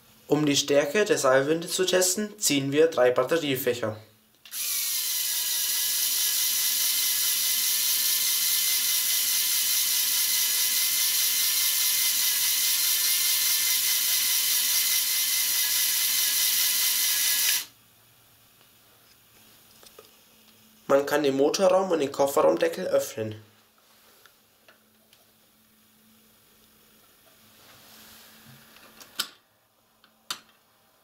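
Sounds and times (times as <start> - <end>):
electric winch motor whining: 4.5 - 17.7.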